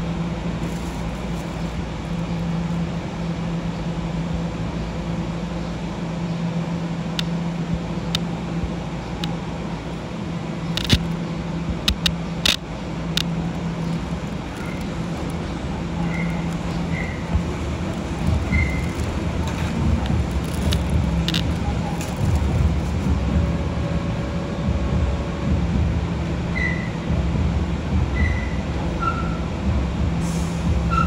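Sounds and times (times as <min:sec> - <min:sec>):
electric train running past: 0:00.0 - 0:31.0
sharp clicks: 0:10.7 - 0:11.2, 0:11.9 - 0:15.5, 0:18.2 - 0:22.5.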